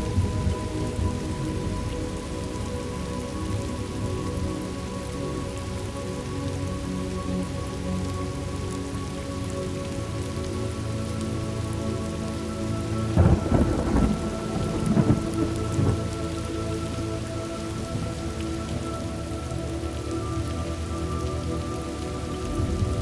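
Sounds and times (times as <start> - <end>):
steady rain: 0.0 - 23.0
thunder rumbling: 13.2 - 16.2.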